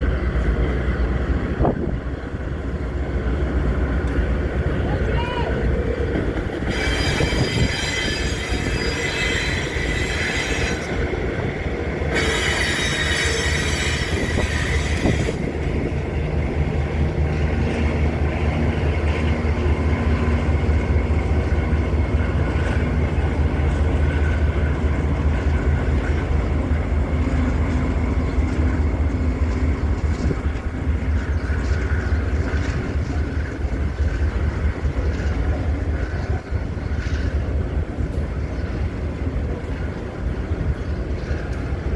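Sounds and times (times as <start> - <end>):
diesel locomotive drone: 0.0 - 41.9
metallic wheel squeal: 6.6 - 11.0, 12.1 - 15.4.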